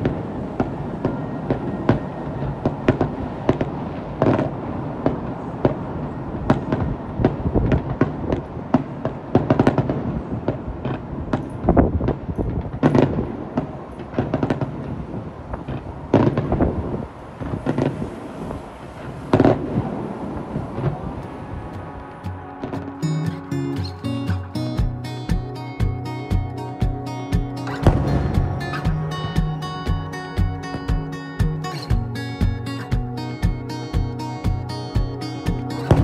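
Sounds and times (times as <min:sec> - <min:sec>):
low rumble: 0:24.6 - 0:36.0.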